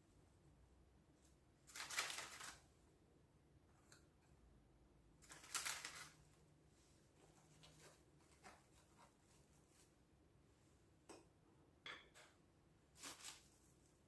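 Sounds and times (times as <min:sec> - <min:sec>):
quiet rustles of biscuits: 0:05.1 - 0:10.8.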